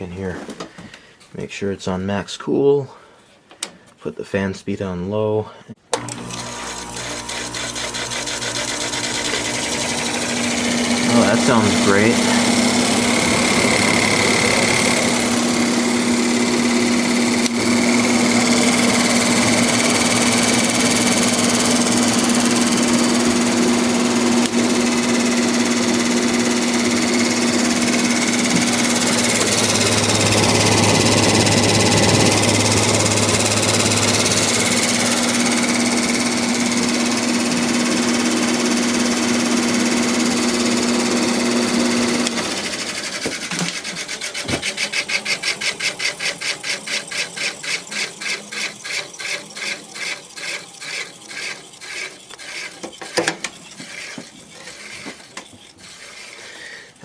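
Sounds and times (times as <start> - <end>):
window air conditioner humming: 9.0 - 43.2.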